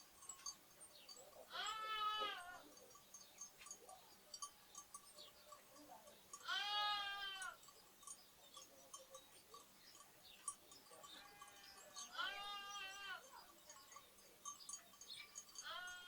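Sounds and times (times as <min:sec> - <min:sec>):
sparrows chirping: 0:00.0 - 0:16.0
lamb bleating: 0:01.5 - 0:02.6, 0:06.4 - 0:07.6, 0:11.3 - 0:13.2, 0:15.6 - 0:16.0.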